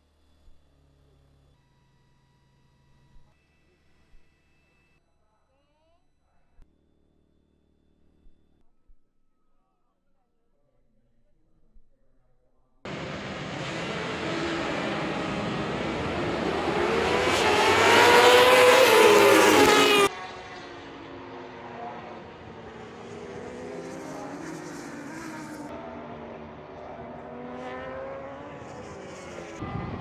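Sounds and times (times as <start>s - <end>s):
racing motorcycle engines: 12.9s - 30.0s.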